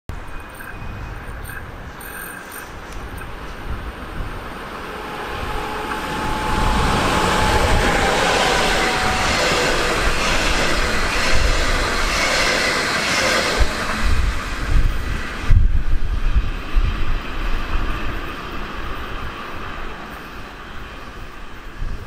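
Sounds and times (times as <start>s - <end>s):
train wheels on rails: 0.1s - 22.0s
faint whine: 2.8s - 11.9s.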